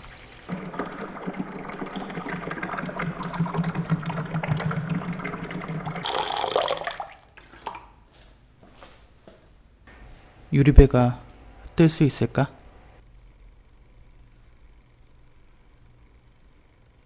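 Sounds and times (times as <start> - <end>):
water pouring into vessel: 6.0 - 8.0.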